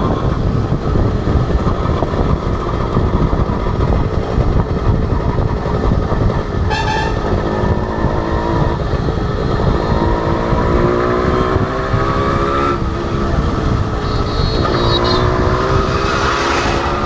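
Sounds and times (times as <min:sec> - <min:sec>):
two-stroke motorcycle accelerating: 0:00.0 - 0:17.0
wind rumble on microphone: 0:00.0 - 0:17.0
brief high-pitched tone: 0:14.0 - 0:15.3.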